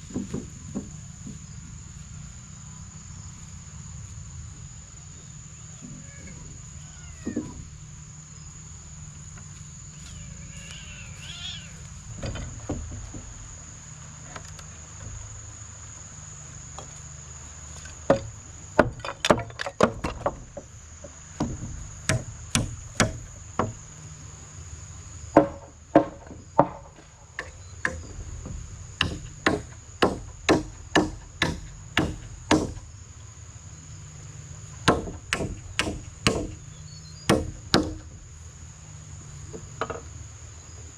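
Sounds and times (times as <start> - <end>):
sharp blows striking wood: 0.1 - 1.4, 18.0 - 24.2, 25.3 - 32.9, 34.8 - 38.2
high-pitched insect drone: 0.8 - 19.0.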